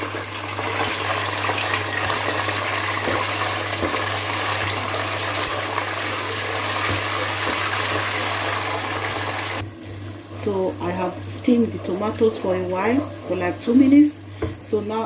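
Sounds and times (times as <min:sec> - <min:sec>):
paste sizzling in hot oil: 0:00.0 - 0:09.9.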